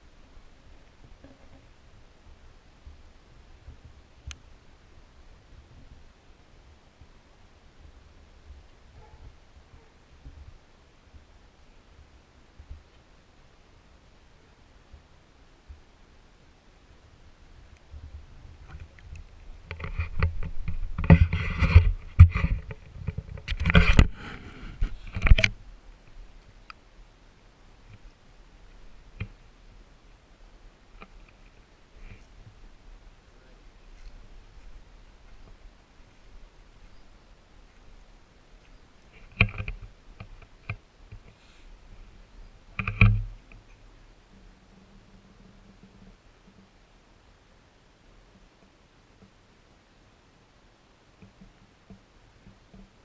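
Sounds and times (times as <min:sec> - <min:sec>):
muffled underwater knocking and scraping: 0:00.7 - 0:01.8, 0:17.9 - 0:25.6, 0:42.8 - 0:43.7
sharp knocks and clicks: 0:42.8 - 0:43.3.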